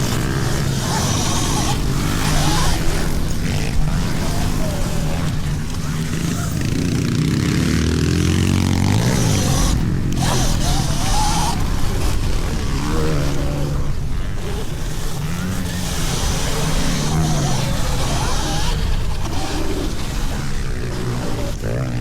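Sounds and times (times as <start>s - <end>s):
dirt bike engines revving: 0.0s - 22.0s
steady rushing noise: 0.0s - 22.0s.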